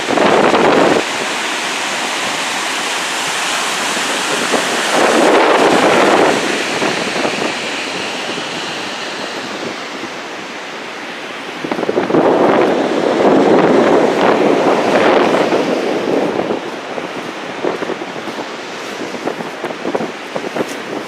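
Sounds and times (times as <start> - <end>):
waves crashing: 0.0 - 21.0
wind buffeting microphone: 0.0 - 21.0.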